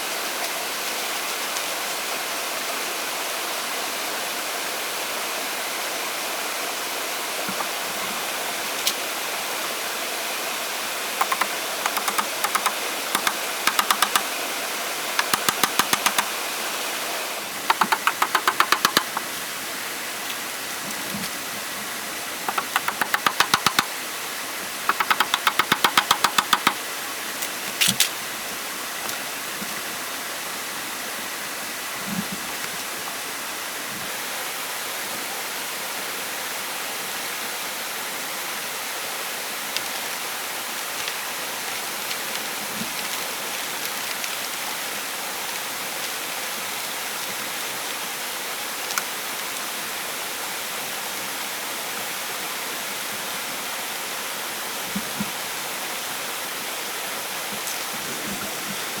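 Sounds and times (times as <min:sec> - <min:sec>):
steady rushing hiss: 0:00.0 - 0:32.2, 0:37.8 - 0:59.0
rapid sharp knocking: 0:11.2 - 0:14.4, 0:15.2 - 0:16.4, 0:17.7 - 0:19.3, 0:22.5 - 0:23.9, 0:24.9 - 0:26.8.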